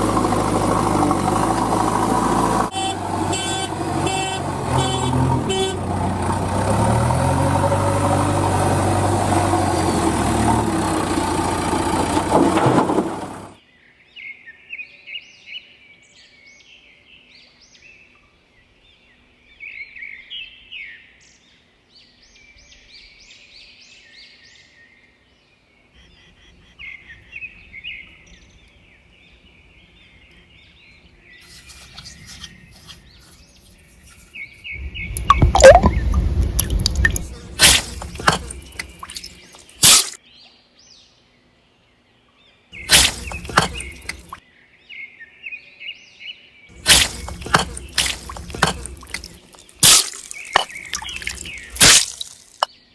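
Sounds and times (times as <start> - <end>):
heavy vehicle engine running: 0.0 - 13.6, 31.5 - 39.9, 42.8 - 44.4, 46.8 - 49.6
birds chirping: 25.8 - 41.2, 42.5 - 46.0, 46.7 - 52.9.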